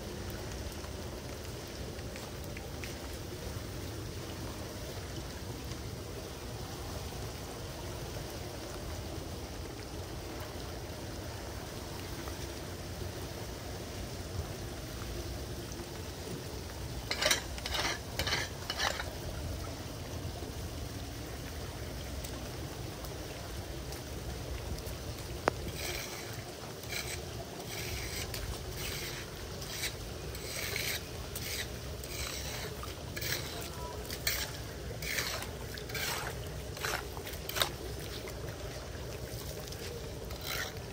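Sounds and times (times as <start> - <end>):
floodwater running into drain: 0.0 - 40.9
scraping debris from drain: 17.1 - 19.1, 25.4 - 38.4, 39.8 - 40.9.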